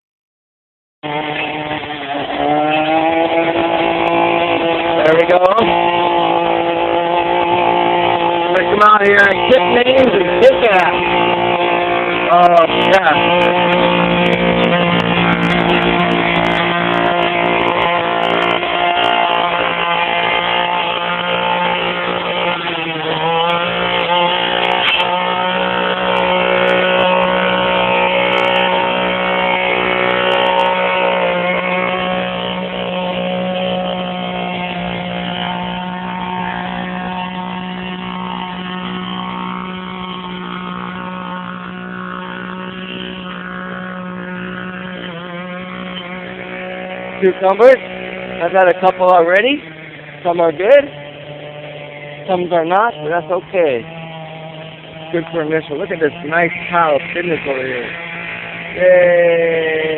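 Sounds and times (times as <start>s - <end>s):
small petrol engine running: 1.0s - 59.9s.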